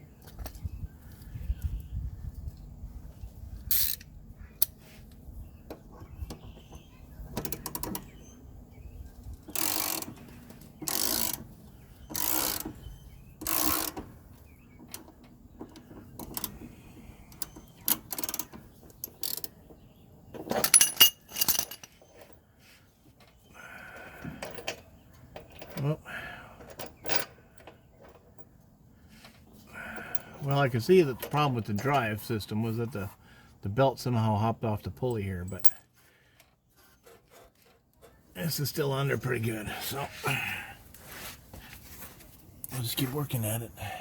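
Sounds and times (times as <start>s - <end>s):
hand tool ratcheting: 3.7s - 4.1s, 9.5s - 11.4s, 12.1s - 12.7s, 13.4s - 14.1s, 17.4s - 19.5s
ringing metal clanks: 20.6s - 21.9s.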